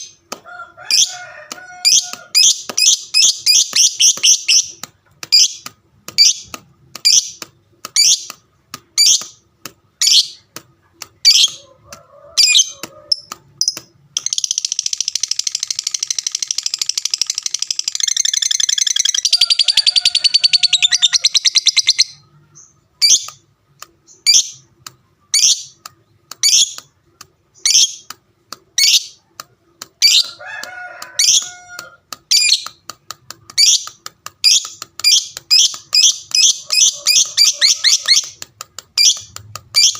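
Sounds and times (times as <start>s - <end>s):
lovebird chirping and trilling: 0.9s - 8.4s, 9.0s - 9.4s, 10.0s - 10.5s, 11.2s - 11.6s, 12.4s - 23.4s, 24.0s - 26.9s, 27.5s - 28.1s, 28.8s - 29.2s, 30.0s - 30.4s, 31.2s - 32.9s, 33.5s - 39.9s.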